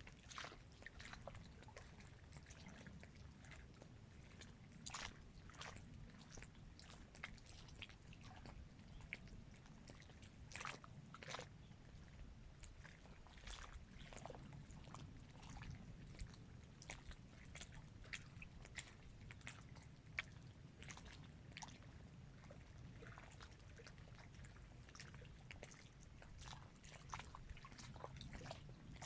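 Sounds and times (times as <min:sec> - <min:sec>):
low steady rumble: 0:00.0 - 0:29.0
small waves lapping: 0:00.0 - 0:29.0.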